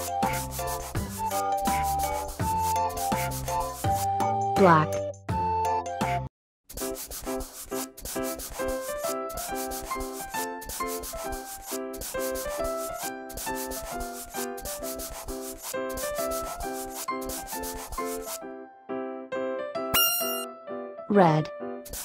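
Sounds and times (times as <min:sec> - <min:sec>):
pen scratching on paper: 0:00.0 - 0:04.2, 0:06.7 - 0:18.4
light music with plinking melody: 0:19.5 - 0:21.3.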